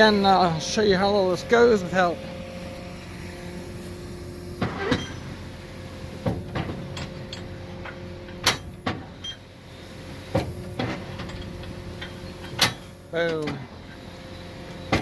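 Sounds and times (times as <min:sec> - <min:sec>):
tractor and baler running: 0:00.0 - 0:15.0.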